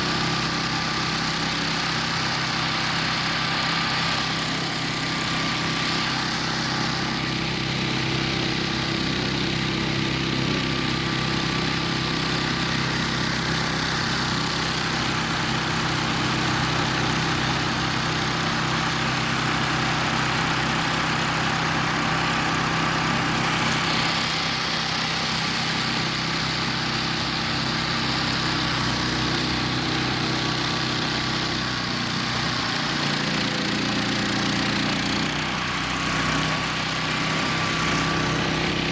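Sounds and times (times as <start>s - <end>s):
engine droning steadily: 0.0s - 38.9s.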